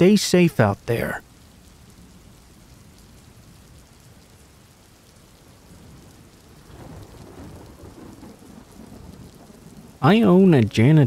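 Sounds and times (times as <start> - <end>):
steady rain falling: 0.0 - 11.0
thunder rumble: 5.4 - 10.9.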